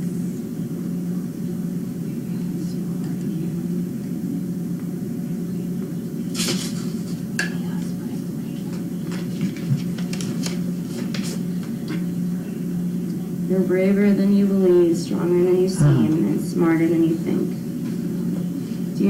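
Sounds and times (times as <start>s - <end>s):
low hum: 15.6s - 16.4s.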